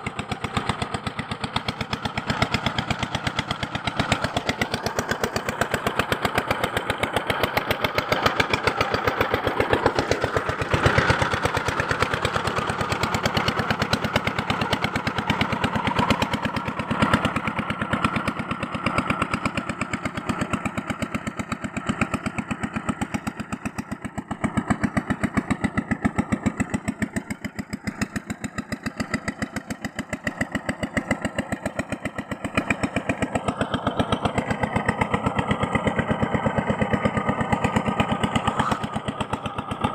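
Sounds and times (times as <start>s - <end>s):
small motor pulsing: 38.4s - 38.9s.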